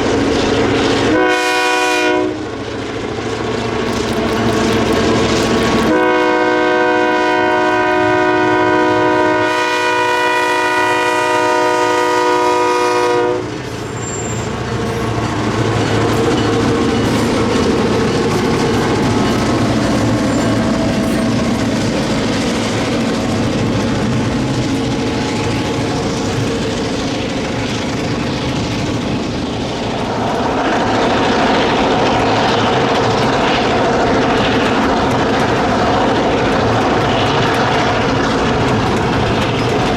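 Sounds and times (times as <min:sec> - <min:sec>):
locomotive air horn: 0:01.1 - 0:02.5, 0:05.9 - 0:13.6
locomotive engine running: 0:03.4 - 0:09.4, 0:11.0 - 0:39.9
train wheels clattering: 0:03.6 - 0:39.9.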